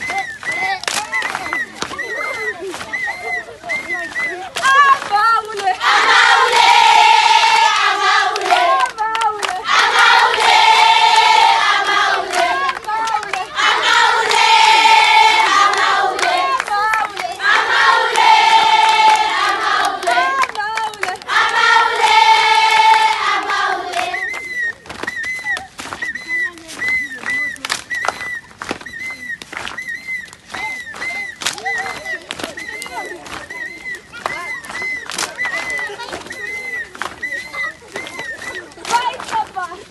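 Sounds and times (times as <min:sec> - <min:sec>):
hand clapping: 0:00.0 - 0:05.8, 0:07.6 - 0:09.6, 0:11.8 - 0:13.5, 0:18.1 - 0:39.7
girls singing in unison: 0:04.8 - 0:24.3.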